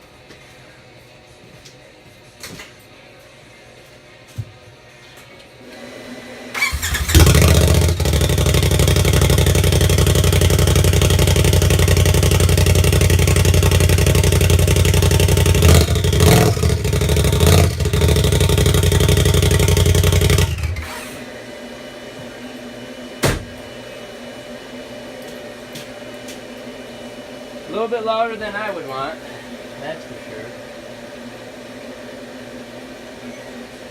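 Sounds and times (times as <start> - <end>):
loud engine revving: 6.6 - 20.9.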